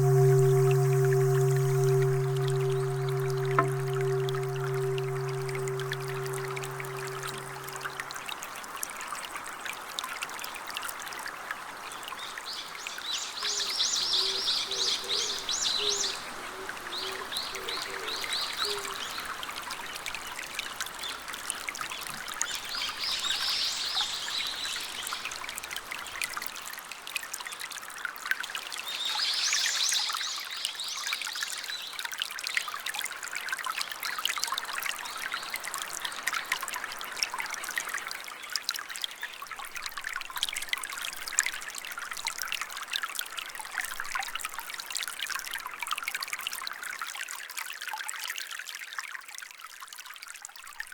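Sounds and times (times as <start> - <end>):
running water: 0.0 - 8.4.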